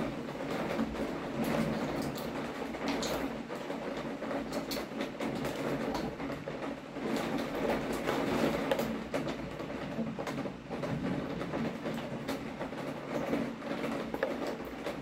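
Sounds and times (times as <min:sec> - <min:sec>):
rain falling: 0:00.0 - 0:15.0
raindrops tapping on window glass: 0:00.0 - 0:15.0.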